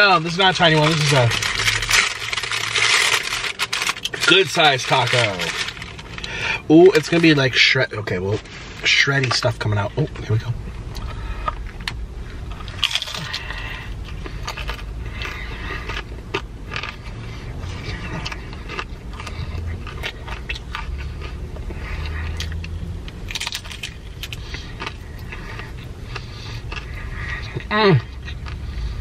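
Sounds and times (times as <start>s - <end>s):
low steady hum: 0.0s - 29.0s
chewing crunchy food: 0.1s - 6.3s, 10.9s - 28.8s.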